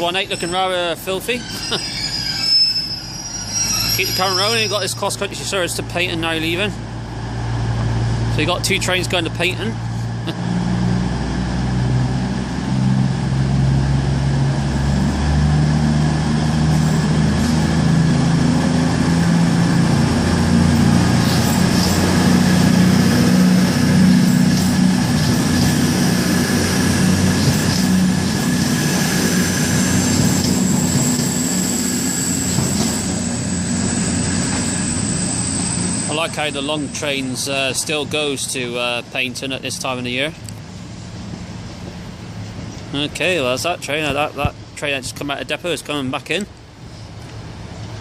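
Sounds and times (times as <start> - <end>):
diesel train engines under load: 0.0 - 48.0
thin high whine: 0.2 - 5.3.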